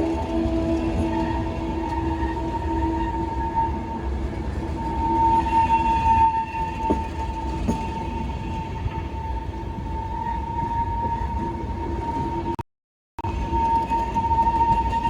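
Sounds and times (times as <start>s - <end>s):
electric locomotive whine: 0.0s - 12.6s, 13.2s - 15.0s
train low rumble: 0.0s - 12.6s.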